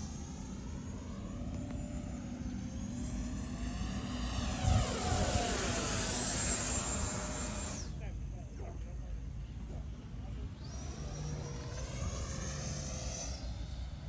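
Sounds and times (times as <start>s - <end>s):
model jet fan whining passing by: 0.0s - 8.4s, 10.2s - 14.0s.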